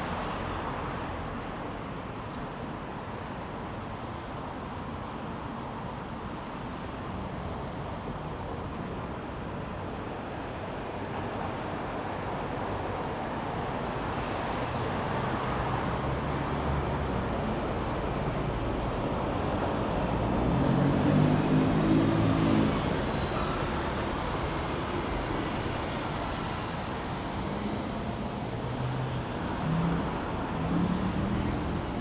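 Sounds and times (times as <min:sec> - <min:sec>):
street traffic passing: 0:00.0 - 0:32.0.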